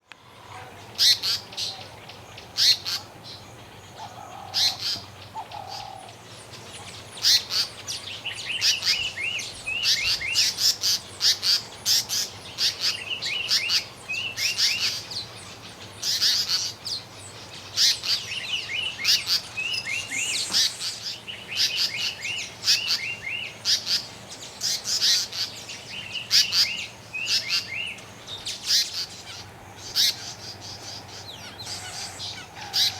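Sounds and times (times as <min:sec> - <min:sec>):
bird chirping in bursts: 0:06.5 - 0:32.9.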